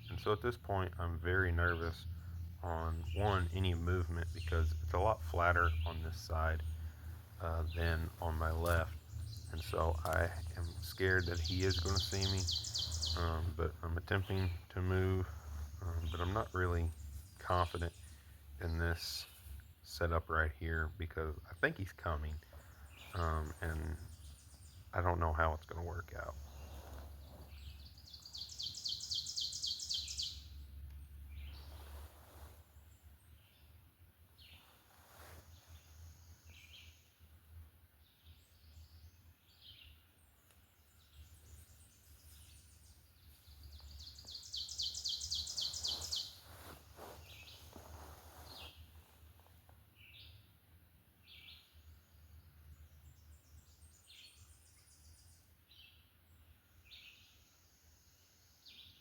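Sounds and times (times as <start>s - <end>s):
songbird high trill: 11.2s - 13.4s, 27.5s - 30.4s, 43.7s - 47.7s
short bird chirps: 43.4s - 48.9s.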